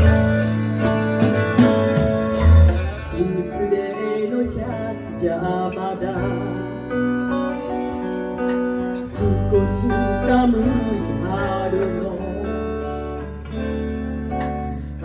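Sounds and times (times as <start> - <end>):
melody line: 0.0 - 8.4
bass notes: 0.0 - 15.0
guitar strumming: 0.0 - 15.0.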